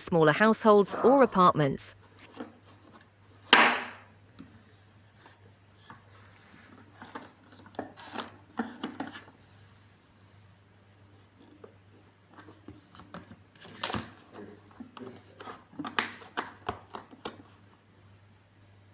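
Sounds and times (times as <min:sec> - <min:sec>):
sharp knock: 0:03.5 - 0:04.0.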